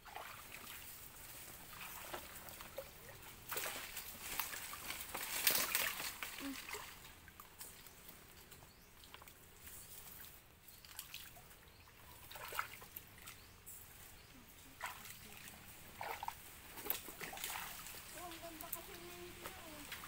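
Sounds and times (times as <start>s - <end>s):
small water splashes: 0.0s - 7.9s, 8.7s - 13.5s, 14.5s - 20.0s
shallow water sloshing: 9.0s - 13.5s, 14.6s - 20.0s.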